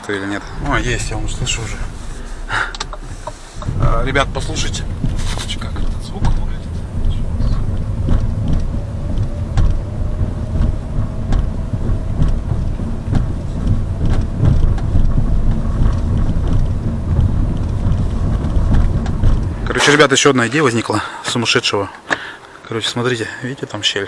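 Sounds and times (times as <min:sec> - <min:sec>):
faint rising whine: 0:00.0 - 0:17.0
road and engine rumble: 0:00.0 - 0:21.3.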